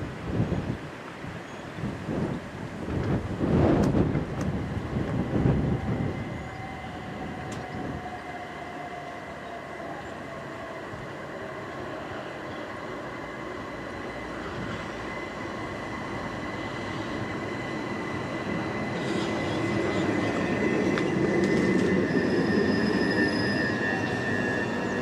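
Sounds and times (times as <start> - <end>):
electric train running whine: 2.7 - 25.0
wheels clicking and squealing: 16.0 - 25.0.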